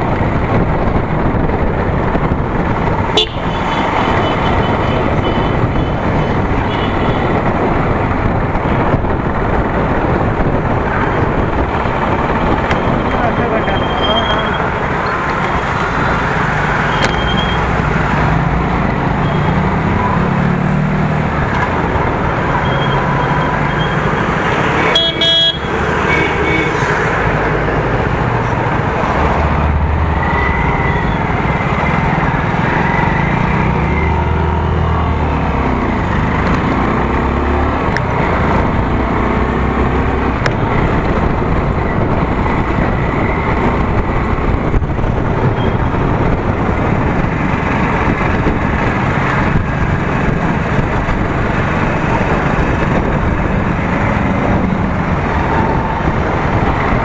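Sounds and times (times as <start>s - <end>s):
road and wind noise: 0.0s - 57.0s
vehicle horn: 3.2s - 5.6s, 24.9s - 26.8s.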